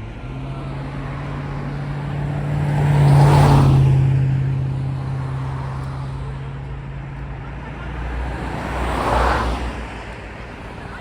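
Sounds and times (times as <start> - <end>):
motor vehicle passing close by: 0.4 - 6.3, 8.0 - 10.0.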